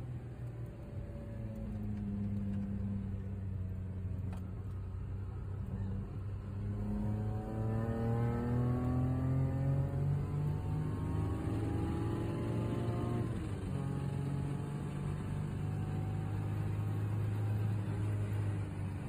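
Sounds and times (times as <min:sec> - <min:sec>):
car engine revving: 0:05.5 - 0:19.0.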